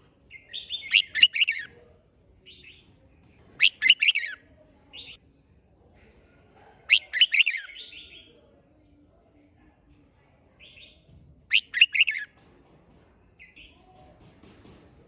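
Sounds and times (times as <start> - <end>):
bird singing bright phrases: 0.3 - 1.7, 3.6 - 8.4, 10.6 - 12.3.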